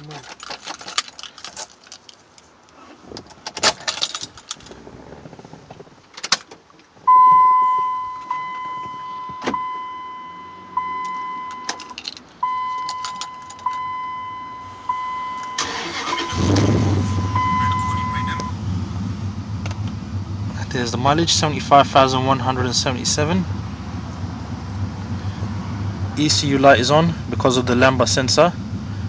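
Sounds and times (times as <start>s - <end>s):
keys jangling: 0.0s - 2.5s, 3.5s - 4.8s, 11.1s - 13.8s
dashboard warning chime: 7.1s - 18.6s
engine cranking and starting: 15.4s - 18.6s.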